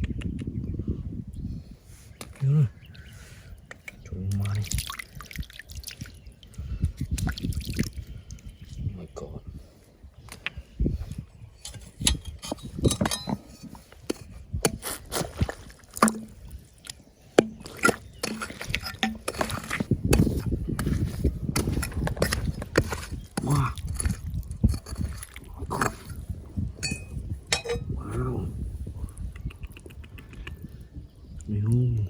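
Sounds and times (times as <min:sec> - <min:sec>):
stones and gravel clinking: 0:11.6 - 0:16.7, 0:17.4 - 0:26.2, 0:26.8 - 0:28.0
water sloshing: 0:14.7 - 0:23.4, 0:26.8 - 0:27.9.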